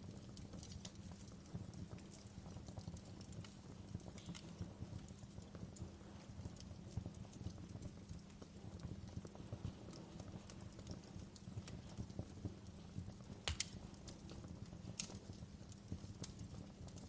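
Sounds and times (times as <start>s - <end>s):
fireplace fire crackling: 3.4s - 15.1s.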